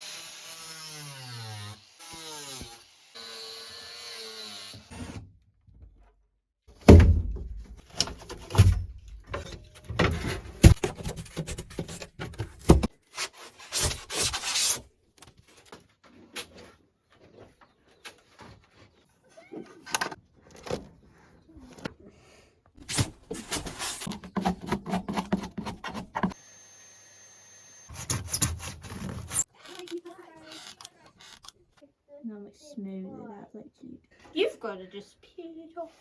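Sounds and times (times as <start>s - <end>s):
knocks thumps and scraping: 6.7s - 12.9s, 22.8s - 26.4s, 27.9s - 31.6s.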